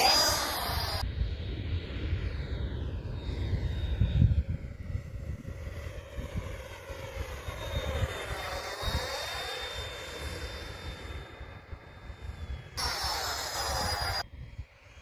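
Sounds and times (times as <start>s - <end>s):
wind buffeting microphone: 0.0s - 14.8s
model jet fan whine: 0.0s - 15.0s.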